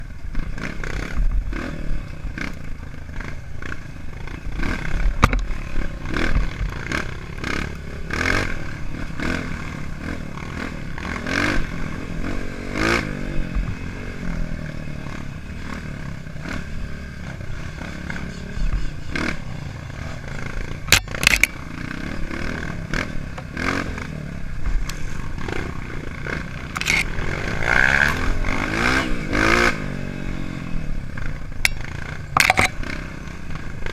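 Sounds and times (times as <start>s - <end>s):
dirt bike engine revving: 0.0s - 33.9s
sharp knocks and clatter: 31.6s - 32.8s.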